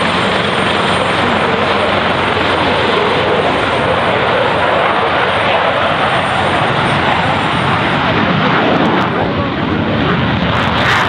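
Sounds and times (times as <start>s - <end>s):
jet engine roar: 0.0s - 11.0s.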